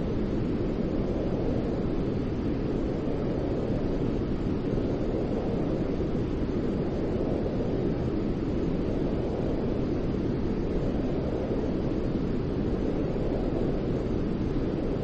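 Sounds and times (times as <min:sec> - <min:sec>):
steady white noise hiss: 0:00.0 - 0:15.0.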